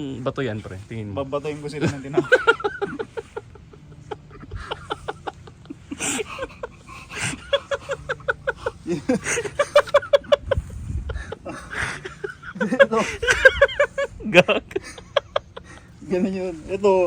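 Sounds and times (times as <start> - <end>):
men laughing hard: 1.5 - 17.0.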